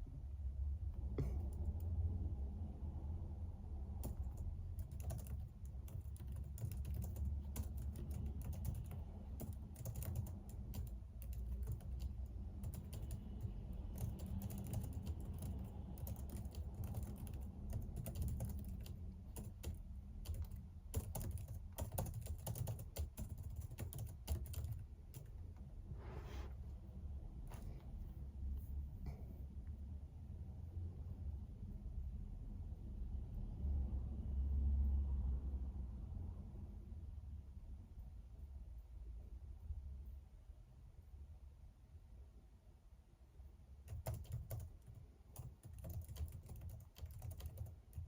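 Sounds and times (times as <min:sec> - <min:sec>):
low steady hum: 0:00.0 - 0:48.0
keyboard typing clicks: 0:04.0 - 0:25.3, 0:43.9 - 0:48.0.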